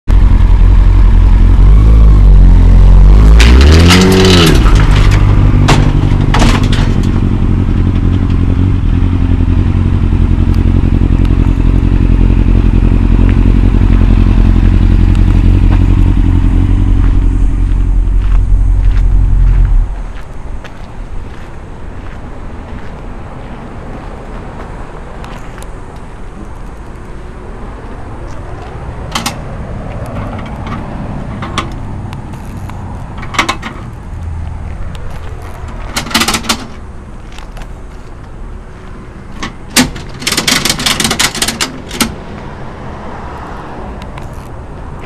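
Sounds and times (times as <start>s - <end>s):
steady low rumble: 0.1s - 3.4s, 4.0s - 40.2s
metal clanks and rattles: 3.3s - 8.7s, 35.4s - 36.8s, 39.3s - 42.2s.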